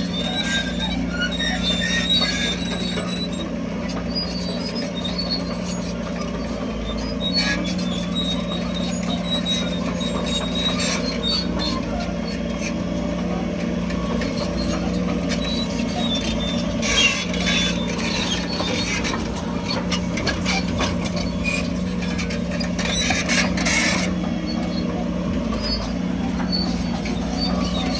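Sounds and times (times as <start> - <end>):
diesel engine running: 0.0 - 27.9
metallic clicks and squeaks: 0.0 - 27.9.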